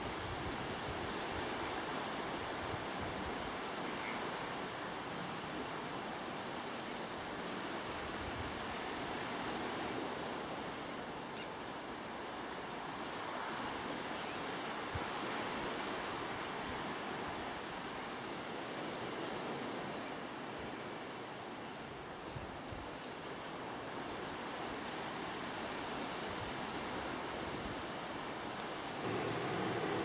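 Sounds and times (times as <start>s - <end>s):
steady outdoor rushing noise: 29.0s - 30.0s.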